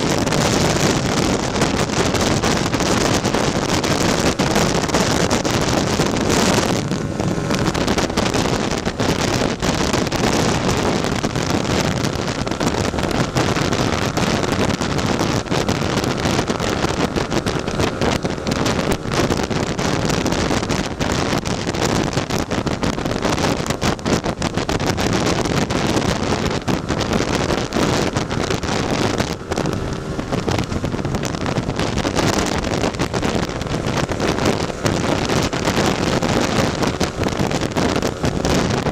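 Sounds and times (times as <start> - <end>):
scooter engine running: 0.0 - 38.9
wind buffeting microphone: 0.0 - 38.9.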